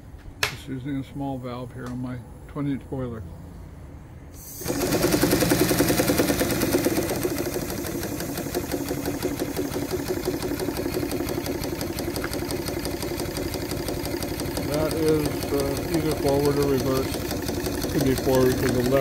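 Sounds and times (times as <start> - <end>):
small steam engine clattering: 4.6 - 19.0.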